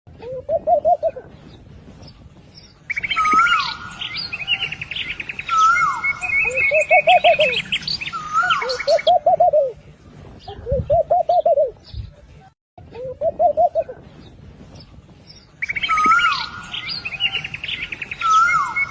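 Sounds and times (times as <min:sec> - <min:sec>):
songbird trills and chirps: 0:00.6 - 0:09.7, 0:13.2 - 0:18.9
dove cooing: 0:06.4 - 0:07.6, 0:08.6 - 0:09.8, 0:13.2 - 0:14.0.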